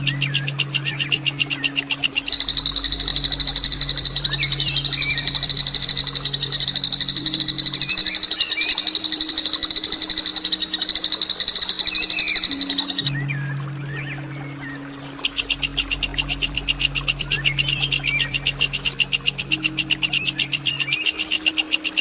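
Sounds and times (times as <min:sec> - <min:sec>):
faint bird chirps: 0:00.0 - 0:13.2
songbird rolling trill: 0:02.1 - 0:13.1.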